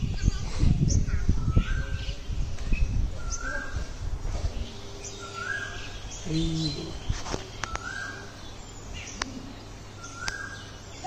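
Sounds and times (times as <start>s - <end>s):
bird calling: 3.2s - 3.9s, 4.6s - 11.0s.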